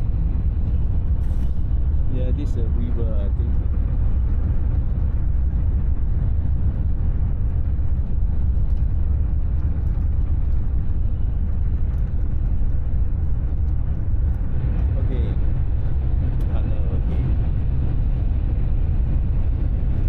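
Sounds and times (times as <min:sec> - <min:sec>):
train rumble inside cabin: 0:00.0 - 0:20.0.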